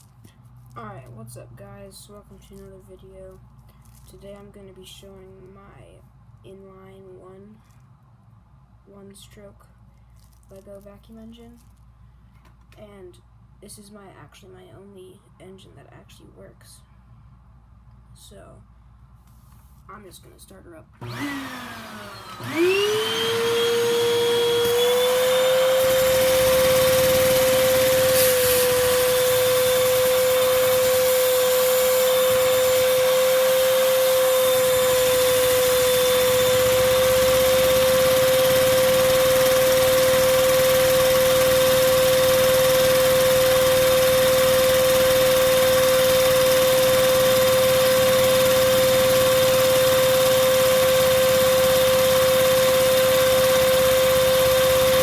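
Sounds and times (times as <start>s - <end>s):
vacuum cleaner motor whine: 21.0s - 55.0s.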